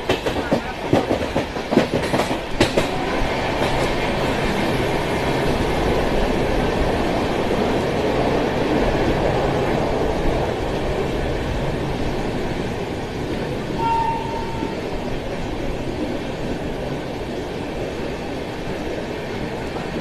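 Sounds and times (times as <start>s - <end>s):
train wheels rumbling on rails: 0.0s - 20.0s
brief high-pitched tone: 13.8s - 14.9s.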